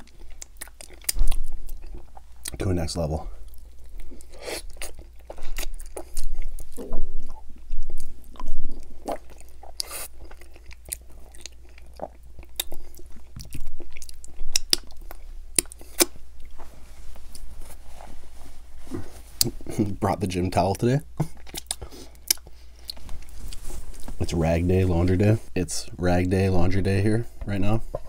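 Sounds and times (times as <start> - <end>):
chewing and biting ribs: 0.0 - 2.6, 3.4 - 16.6, 21.2 - 23.6.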